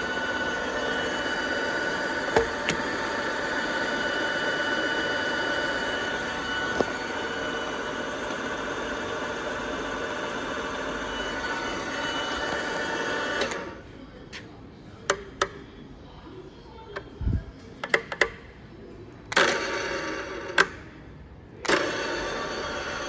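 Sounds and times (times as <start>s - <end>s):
radial drill press running: 0.0s - 13.8s, 19.3s - 20.9s, 21.6s - 23.0s
sharp clicks and knocks: 2.3s - 3.1s.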